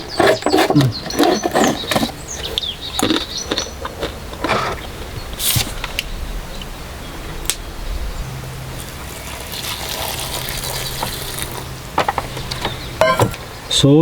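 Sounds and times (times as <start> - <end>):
hot water pouring: 8.4 - 13.4.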